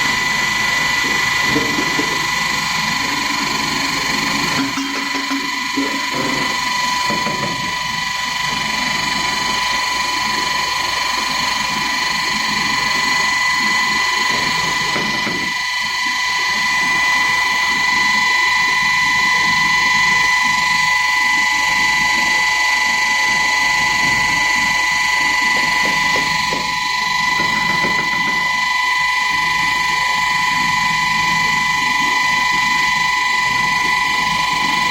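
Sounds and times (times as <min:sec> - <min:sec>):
grinder whining: 0:00.0 - 0:19.3.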